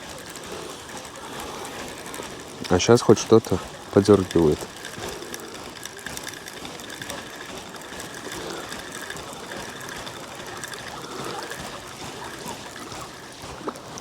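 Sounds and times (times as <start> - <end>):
fishing reel whirring and clicking: 0.0 - 14.0
flowing river water: 0.0 - 14.0.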